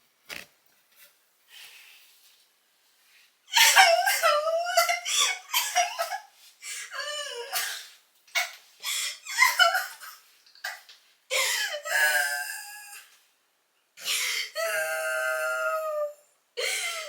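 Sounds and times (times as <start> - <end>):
woman laughing: 3.6 - 6.3.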